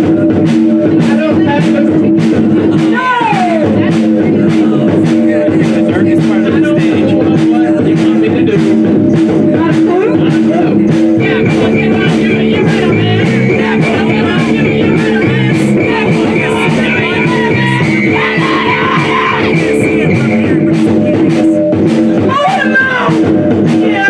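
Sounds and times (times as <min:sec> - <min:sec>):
steady drum beat: 0:00.0 - 0:24.0
held guitar notes: 0:11.2 - 0:21.5.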